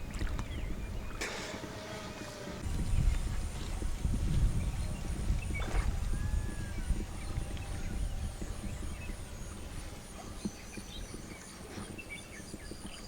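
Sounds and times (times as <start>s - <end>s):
small knocks or splashes: 0.0s - 0.6s.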